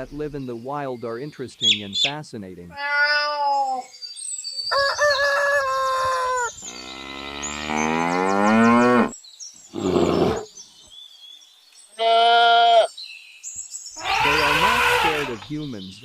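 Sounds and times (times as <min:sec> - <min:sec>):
high-pitched animal call: 0:02.7 - 0:03.9, 0:12.0 - 0:12.9, 0:14.0 - 0:15.5
cow mooing: 0:06.6 - 0:09.1, 0:14.0 - 0:15.4
noisy snort: 0:09.7 - 0:10.5.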